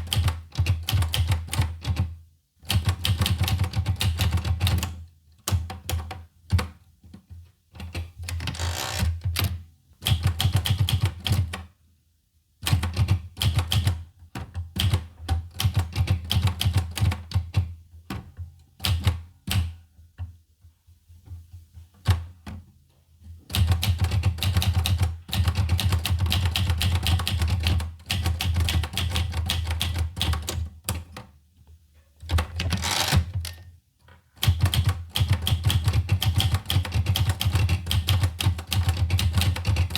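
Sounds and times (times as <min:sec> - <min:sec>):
manual typewriter typing: 0:08.2 - 0:09.5, 0:23.5 - 0:31.2, 0:32.3 - 0:33.6, 0:34.4 - 0:39.9.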